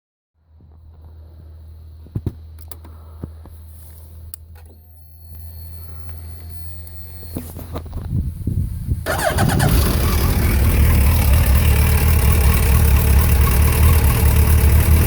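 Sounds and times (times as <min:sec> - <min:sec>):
fuel pump priming whine: 0:09.0 - 0:15.0.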